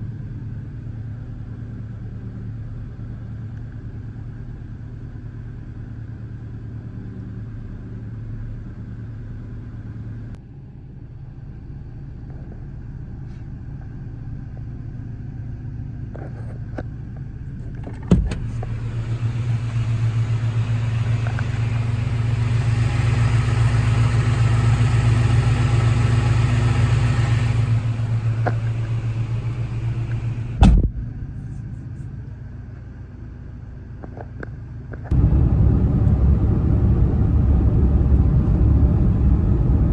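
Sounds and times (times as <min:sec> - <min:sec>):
truck engine idling: 0:17.7 - 0:33.3, 0:35.1 - 0:39.9.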